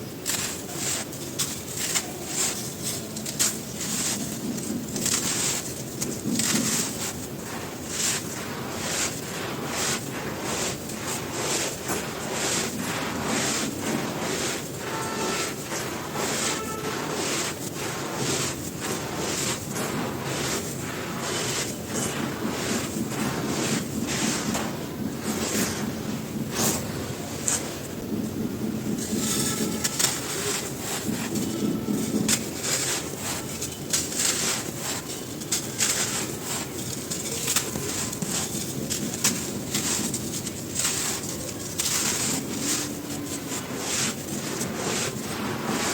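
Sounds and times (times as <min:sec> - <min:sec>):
crumbly material crunching by hand: 0:00.2 - 0:26.8, 0:28.9 - 0:45.9.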